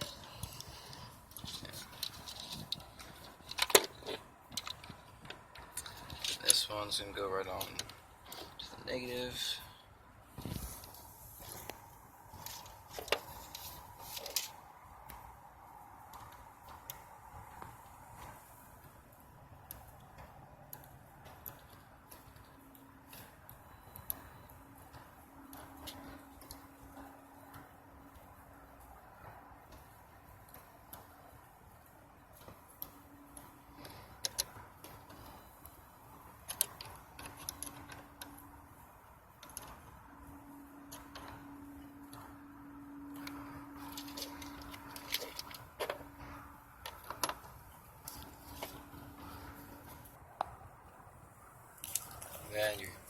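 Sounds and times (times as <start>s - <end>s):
clicks and taps from wiring work: 0.0s - 9.1s, 19.6s - 50.6s
faint steady hum: 0.0s - 53.0s.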